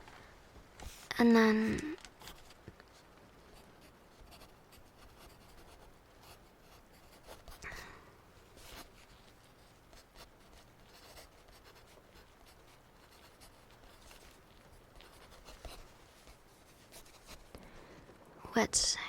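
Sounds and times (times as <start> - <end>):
pencil scratching on paper: 3.8 - 7.6, 8.6 - 14.4, 15.0 - 17.6.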